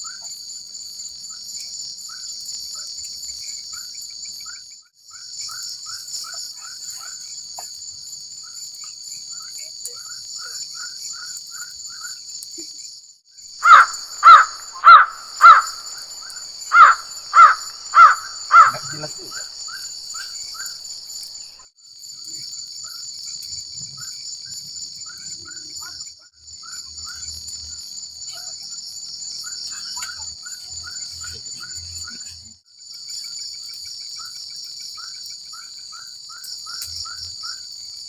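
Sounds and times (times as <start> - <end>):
insects buzzing: 0.0 - 38.0
crow cawing: 13.6 - 20.7.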